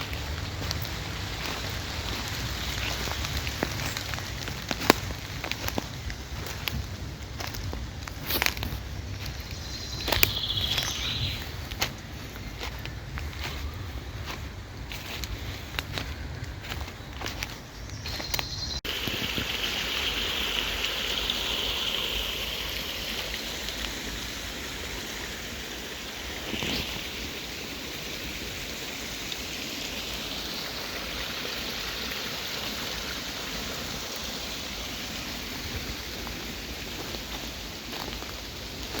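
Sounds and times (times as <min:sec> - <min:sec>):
steady rain falling: 0:00.0 - 0:09.5, 0:18.9 - 0:39.0.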